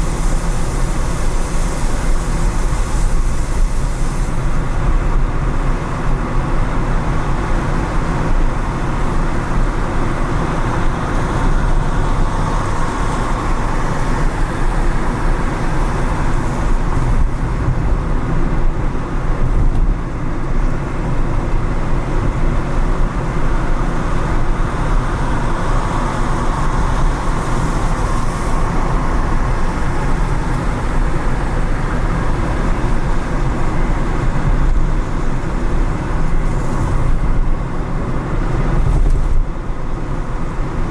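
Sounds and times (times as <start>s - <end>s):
low engine rumble: 0.0s - 40.9s
road and tyre noise: 0.0s - 40.9s
surrounding traffic: 0.0s - 40.9s.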